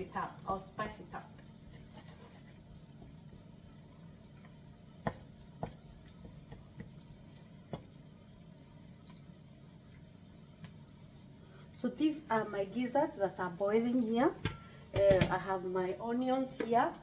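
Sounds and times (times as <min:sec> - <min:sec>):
pot boiling: 0:00.0 - 0:17.0.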